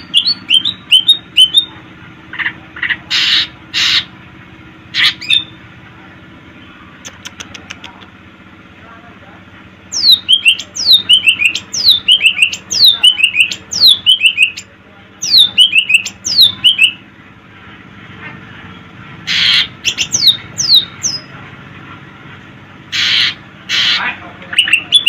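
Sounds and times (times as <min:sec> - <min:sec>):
harsh rasping bird squawk: 0:02.3 - 0:04.1, 0:04.9 - 0:05.5, 0:19.2 - 0:21.2, 0:22.9 - 0:25.0.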